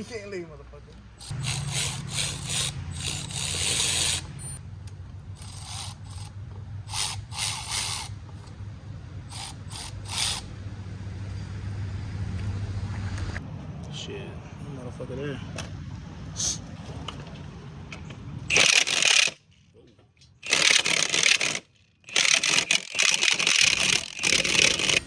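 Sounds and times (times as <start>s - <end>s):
steady low hum: 1.1s - 13.7s
metal scraping: 1.2s - 4.6s, 5.4s - 8.2s, 9.3s - 10.5s
tool ratcheting: 1.2s - 4.6s, 5.4s - 8.1s, 9.3s - 10.5s, 18.5s - 19.4s, 20.4s - 25.0s.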